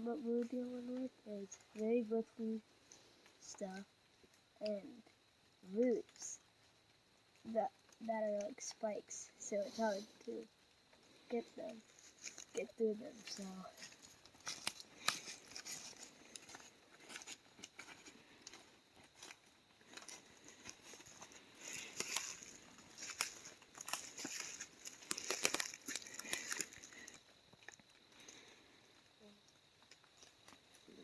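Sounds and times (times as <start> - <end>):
twigs snapping: 13.8 - 28.4
footsteps through dry leaves: 19.9 - 27.0.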